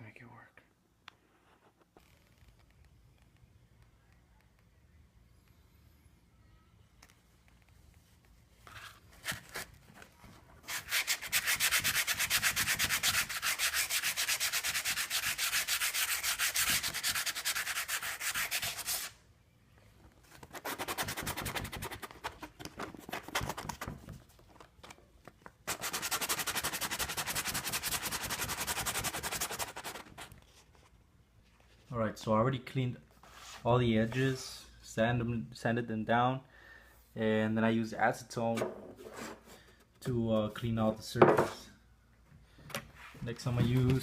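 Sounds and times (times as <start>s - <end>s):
sanding strokes rasping: 10.8s - 19.1s.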